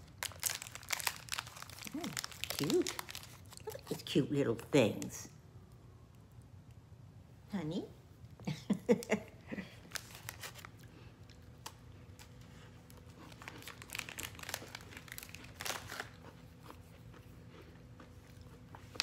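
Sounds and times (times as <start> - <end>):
cookie crunching and chewing: 0.0 - 4.1, 9.6 - 19.0
wrapper crinkling: 0.0 - 4.1, 9.8 - 16.5.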